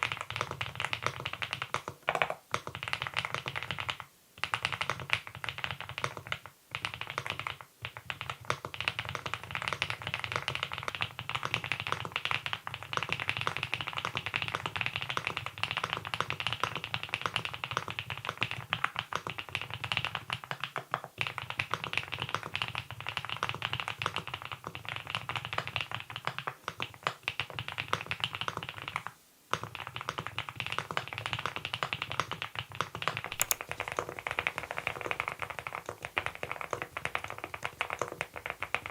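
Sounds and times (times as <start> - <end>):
mechanical keyboard typing: 33.3 - 33.8.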